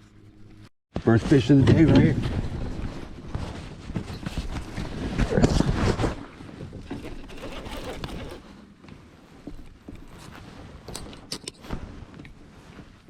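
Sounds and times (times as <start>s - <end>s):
knocks and rattles of gear: 1.5s - 8.6s, 9.5s - 12.4s.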